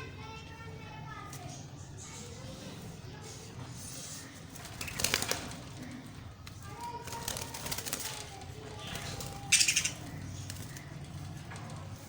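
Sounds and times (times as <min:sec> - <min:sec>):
budgerigars chirping and chattering: 0:08.9 - 0:11.5.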